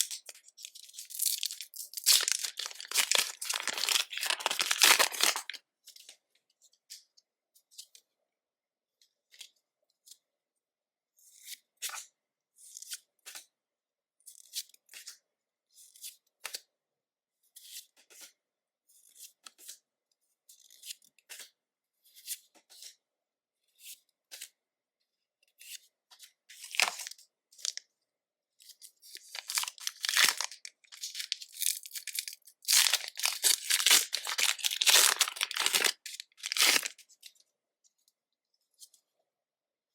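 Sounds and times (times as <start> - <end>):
wrapper crinkling and tearing: 0.9 - 5.6, 26.6 - 27.8, 29.1 - 37.0.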